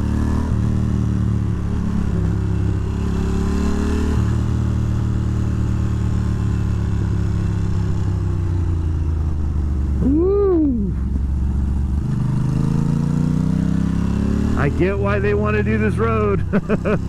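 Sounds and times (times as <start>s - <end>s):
motorcycle engine running: 4.4s - 17.0s.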